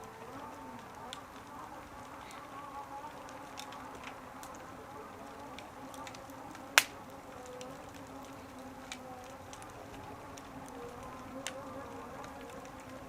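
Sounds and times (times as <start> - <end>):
faint steady hum: 0.0 - 13.0
wood fire crackling: 0.0 - 13.0
loud sharp fire pop: 6.8 - 7.0.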